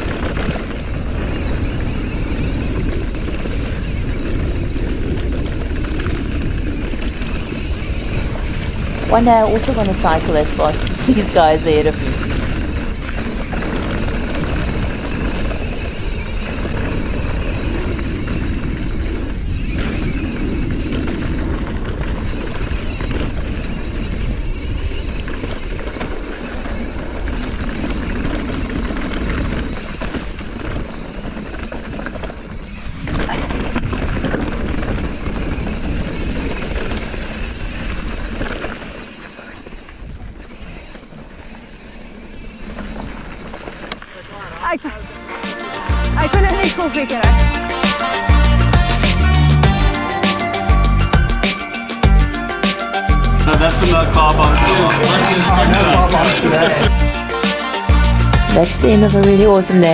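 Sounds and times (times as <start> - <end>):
wind buffeting microphone: 0.0 - 45.4.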